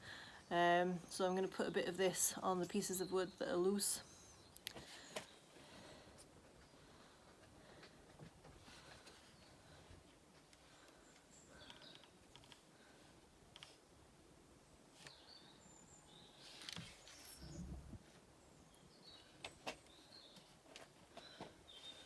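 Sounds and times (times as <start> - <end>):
small birds chirping: 10.6 - 12.2, 15.0 - 18.0, 18.6 - 20.6
dull low thump: 17.4 - 18.0.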